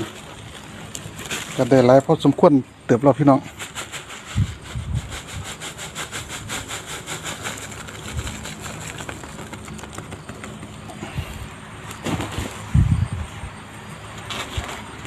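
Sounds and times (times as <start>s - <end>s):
rhythmic cutting of plastic: 3.5s - 10.8s.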